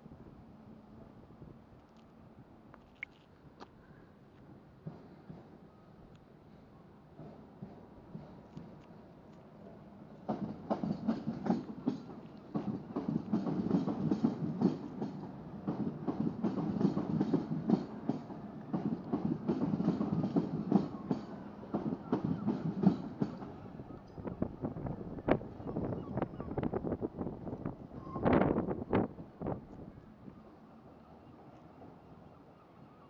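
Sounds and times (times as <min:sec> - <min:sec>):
train low rumble: 0:04.2 - 0:33.0
train wheels clicking over rail joints: 0:10.2 - 0:24.1.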